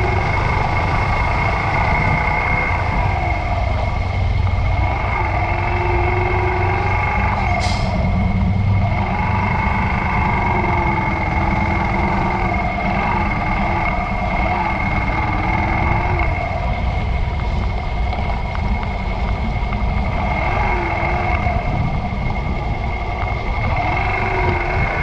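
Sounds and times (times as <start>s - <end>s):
motorcycle engine running: 0.0s - 7.2s
steady high whine: 0.0s - 25.0s.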